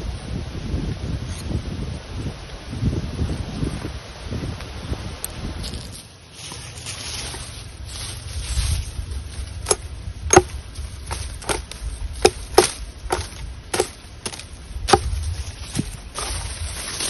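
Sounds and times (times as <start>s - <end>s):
wind: 0.0s - 17.0s
wood being chopped: 9.6s - 15.2s.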